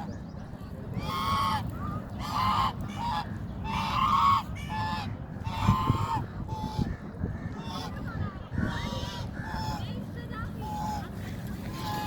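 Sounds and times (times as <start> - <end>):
goose honking: 2.2 - 6.9.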